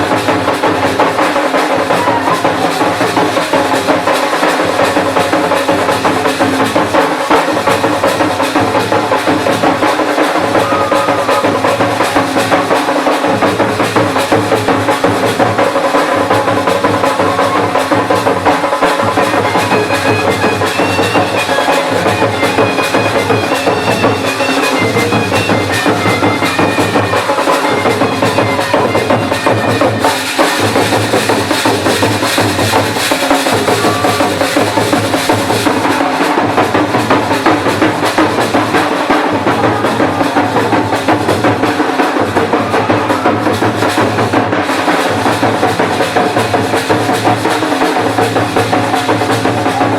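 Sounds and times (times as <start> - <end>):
cymbals: 0.0 - 49.9
drum band playing: 0.0 - 49.9
reed pipe melody: 15.7 - 31.2.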